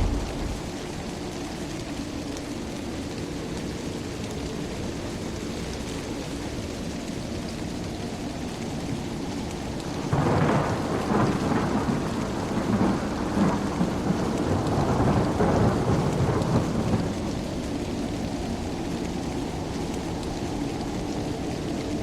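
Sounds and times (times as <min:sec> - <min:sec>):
thunder rumbling: 0:00.0 - 0:01.1, 0:10.1 - 0:17.1
steady rain: 0:00.0 - 0:22.0.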